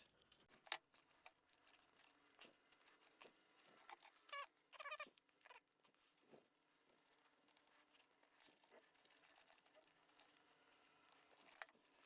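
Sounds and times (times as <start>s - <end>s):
faint clicks of small parts: 0.0s - 12.0s.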